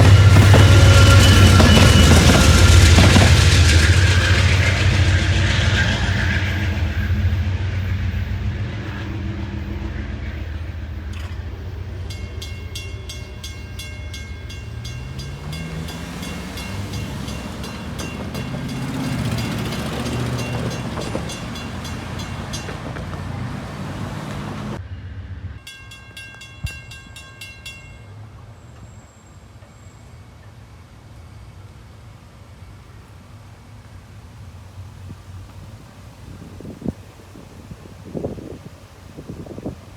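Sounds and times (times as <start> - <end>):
crossing bell ringing: 0.0 - 5.4, 10.5 - 24.8, 25.6 - 28.6
train wheels rumbling on rail: 0.0 - 28.9.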